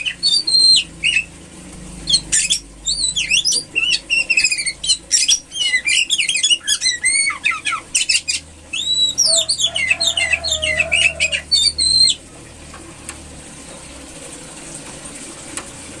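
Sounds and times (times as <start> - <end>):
bird chirping and whistling: 0.0 - 1.3, 2.0 - 12.2.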